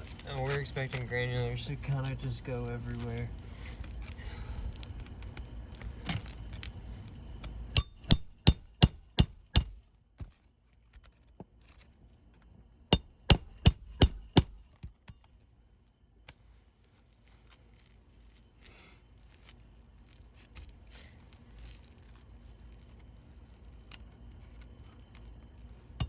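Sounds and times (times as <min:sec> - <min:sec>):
hammer blows on nails: 0:12.9 - 0:14.6.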